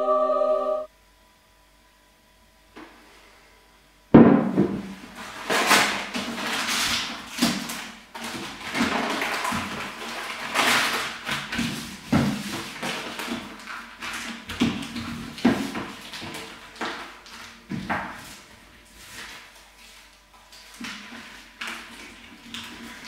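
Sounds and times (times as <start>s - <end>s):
wrapping paper rustling: 5.0s - 23.0s.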